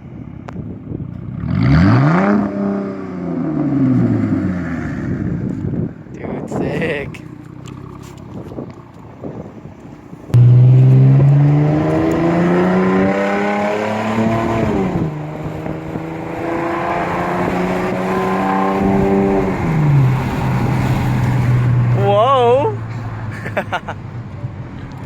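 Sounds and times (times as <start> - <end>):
car engine revving: 1.3 - 5.3, 10.3 - 22.1.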